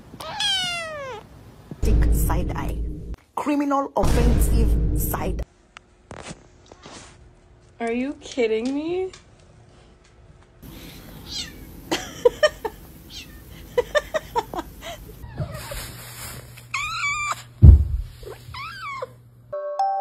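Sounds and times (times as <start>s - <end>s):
cat meowing: 0.2s - 1.3s, 11.2s - 11.7s
loud low thump: 1.8s - 3.2s, 4.0s - 5.4s, 17.6s - 18.1s.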